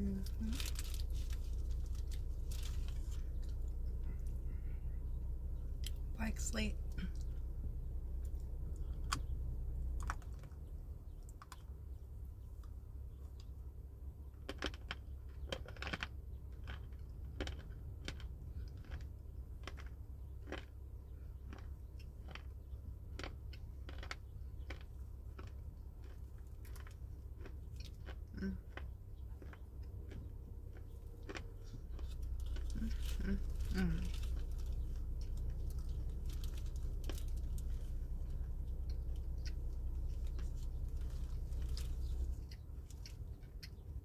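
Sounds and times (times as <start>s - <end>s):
crunching dried fruit: 0.0s - 44.0s
steady low hum: 0.0s - 44.0s.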